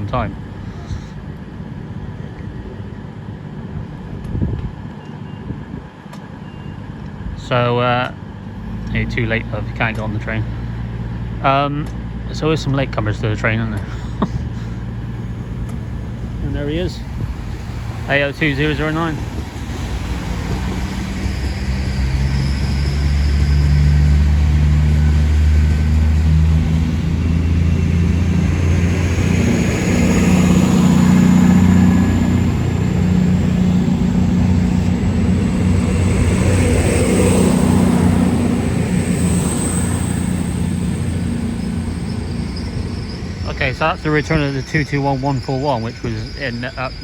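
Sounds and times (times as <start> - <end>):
diesel train engines humming: 0.0 - 47.0
faint high whine: 27.0 - 47.0.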